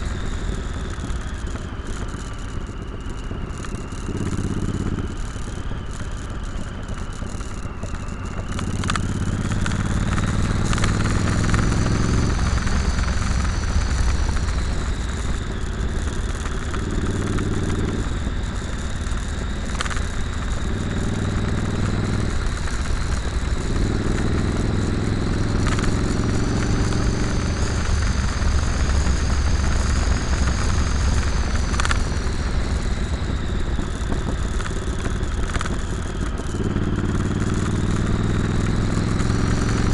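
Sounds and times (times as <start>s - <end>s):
motorcycle engine accelerating: 0.0s - 39.9s
wind and road noise: 0.0s - 39.9s.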